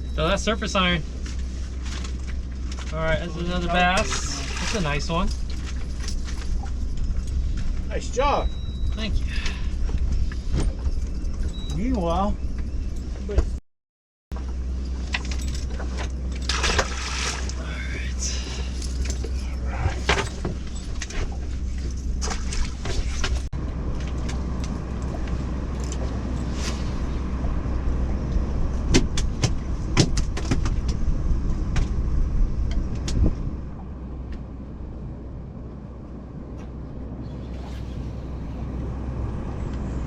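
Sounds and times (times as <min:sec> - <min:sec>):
boat motor humming: 0:00.0 - 0:13.5, 0:14.4 - 0:40.0.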